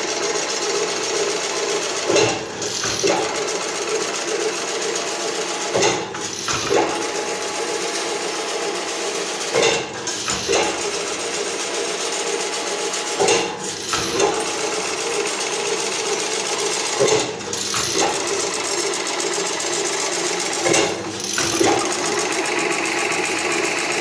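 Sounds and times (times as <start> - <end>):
machine knock: 13.2 - 24.0.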